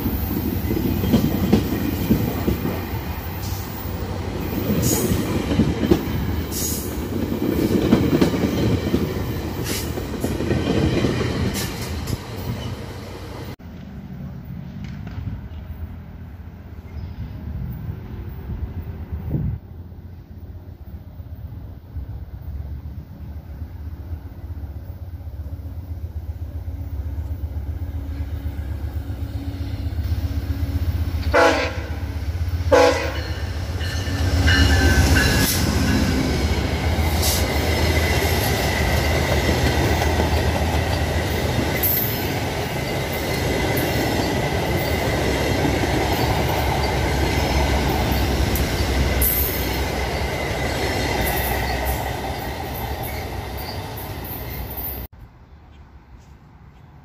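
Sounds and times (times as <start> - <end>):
loud rail noise: 0.0 - 57.0
train rumbling: 0.0 - 57.0
train horn blasts: 31.2 - 32.1, 32.7 - 33.5.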